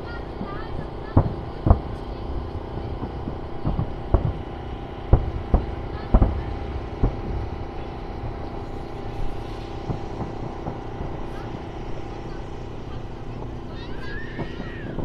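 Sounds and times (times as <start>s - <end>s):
fireworks bangs and booms: 0.0s - 15.0s
steady low rumble: 0.0s - 15.0s.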